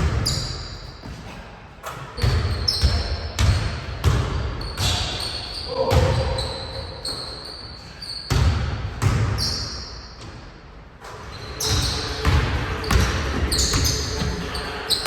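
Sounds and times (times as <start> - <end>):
basketball bouncing on a gym floor: 2.2 - 5.2, 8.3 - 10.4, 11.6 - 15.0.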